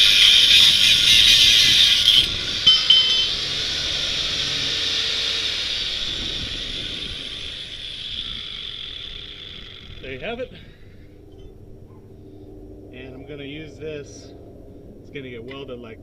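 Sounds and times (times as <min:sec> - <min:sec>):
metallic squeak: 0:00.0 - 0:03.5
angle grinder cutting steel: 0:00.0 - 0:10.5
grinder disc winding down: 0:00.0 - 0:10.5.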